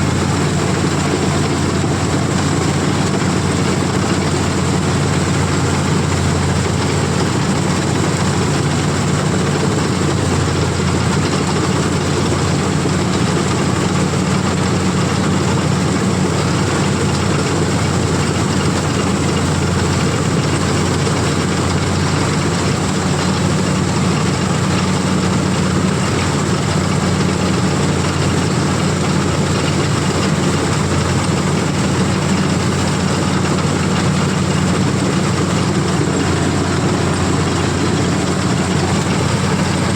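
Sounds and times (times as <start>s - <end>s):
combine harvester engine droning: 0.0s - 39.9s.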